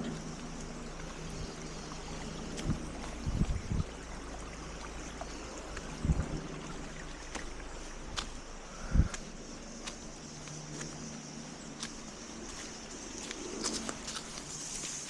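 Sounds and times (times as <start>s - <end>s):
stream water rushing: 0.0s - 15.0s
footsteps on trail: 1.0s - 3.9s, 7.1s - 15.0s.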